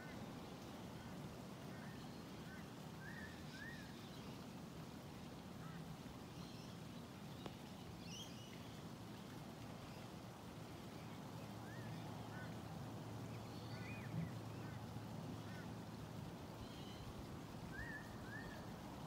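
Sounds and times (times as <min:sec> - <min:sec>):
low outdoor background hum: 0:00.0 - 0:19.0
small tick: 0:07.4 - 0:07.7.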